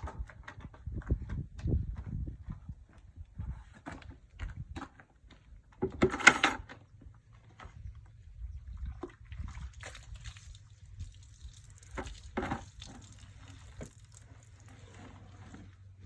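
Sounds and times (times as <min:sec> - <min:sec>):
water splashing and dripping: 0:09.0 - 0:14.9.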